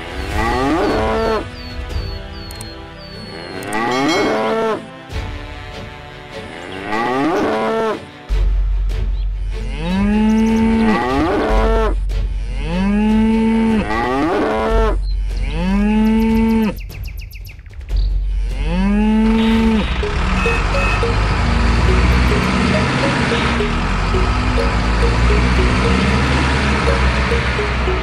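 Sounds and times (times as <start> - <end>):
cow mooing: 0.0 - 1.4, 3.3 - 4.9, 6.5 - 8.1, 9.6 - 16.7, 18.5 - 19.8.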